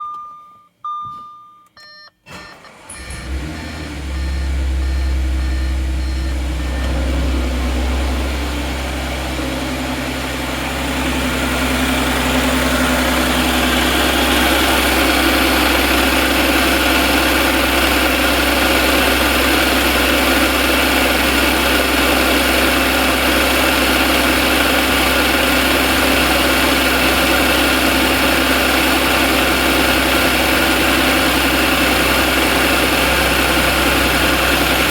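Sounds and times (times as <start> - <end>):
short electronic beeps: 0.0 - 7.0
car engine idling with knock: 2.7 - 34.9.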